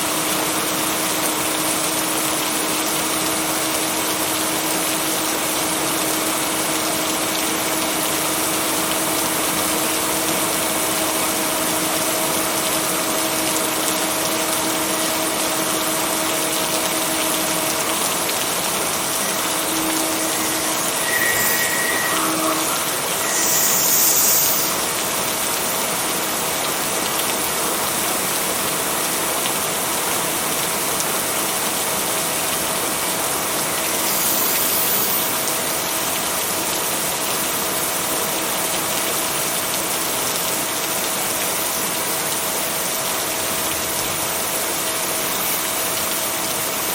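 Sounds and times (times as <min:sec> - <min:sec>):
rain hiss: 0:00.0 - 0:46.9.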